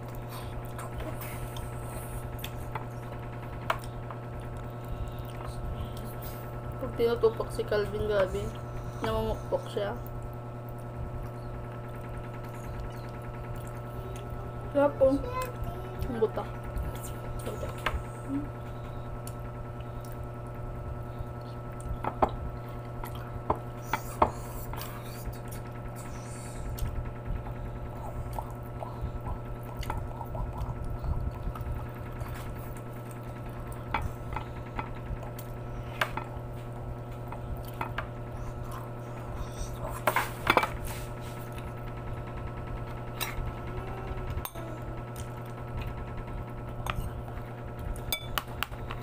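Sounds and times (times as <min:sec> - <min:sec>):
wet chewing and lip-smacking: 0:00.0 - 0:06.4, 0:10.0 - 0:14.4, 0:18.7 - 0:20.4, 0:21.4 - 0:40.0
low electrical hum: 0:00.0 - 0:49.0.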